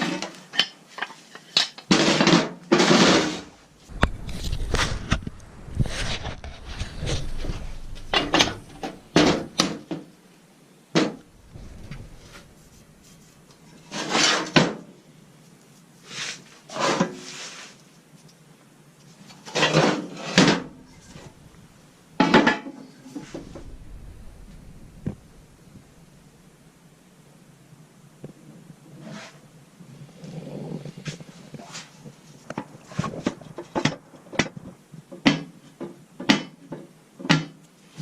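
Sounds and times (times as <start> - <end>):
metal parts clanking and scraping: 5.9 - 9.8, 11.4 - 14.7.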